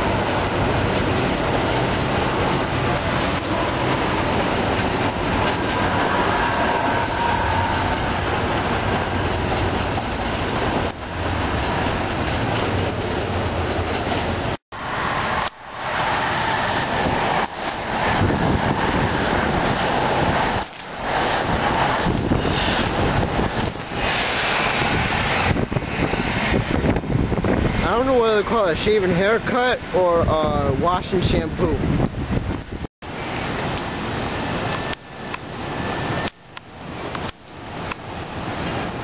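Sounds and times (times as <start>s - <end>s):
rain: 0.0s - 30.8s, 31.8s - 39.0s
train wheels rushing on rail: 0.0s - 39.0s.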